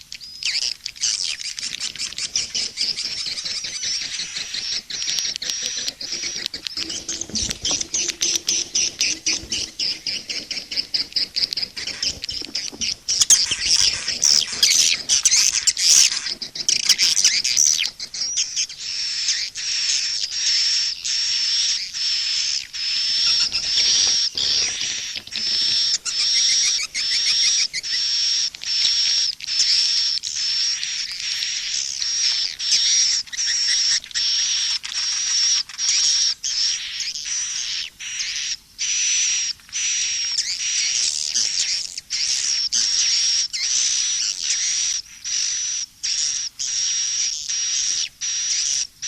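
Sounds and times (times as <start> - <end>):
swiftlets twittering: 1.5 - 19.6.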